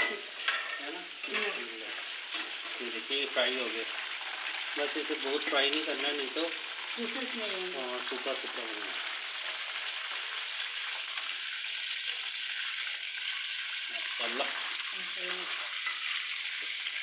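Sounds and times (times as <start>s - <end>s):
chicken frying in hot oil: 0.0s - 17.0s.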